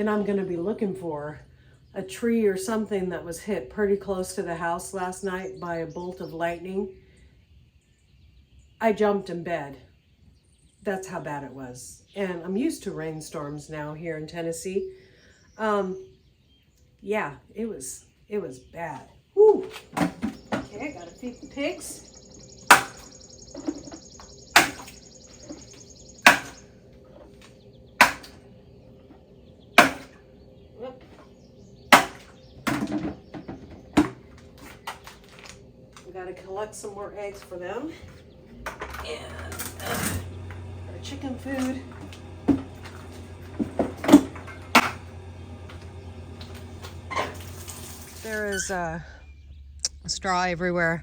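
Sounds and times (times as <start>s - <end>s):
steady low hum: 0.0s - 51.0s
sharp knocks and clunks: 19.8s - 20.8s, 22.6s - 26.6s, 28.0s - 28.4s, 29.8s - 30.2s, 31.9s - 35.1s, 42.0s - 45.1s
sharp knocks: 22.7s - 24.0s, 24.6s - 25.6s, 26.2s - 26.6s, 28.0s - 28.4s, 29.8s - 30.2s, 31.9s - 34.2s.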